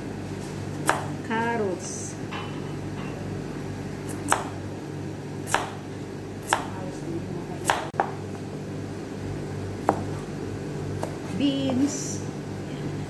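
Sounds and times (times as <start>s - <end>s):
knife chopping on cutting board: 0.8s - 1.1s, 4.1s - 4.6s, 5.5s - 5.8s, 6.4s - 6.7s, 7.6s - 8.2s, 9.8s - 10.2s, 11.0s - 11.9s.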